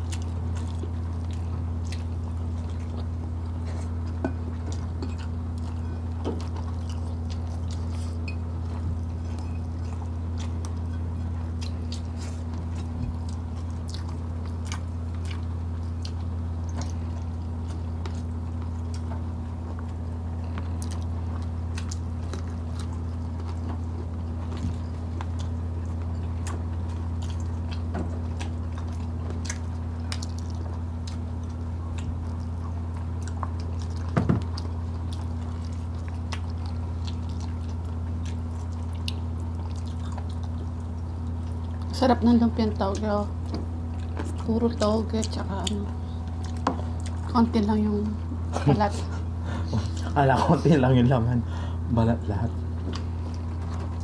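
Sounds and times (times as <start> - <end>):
chewing and mouth clicks: 0.0 - 50.2, 52.5 - 54.0
steady low hum: 0.0 - 54.0.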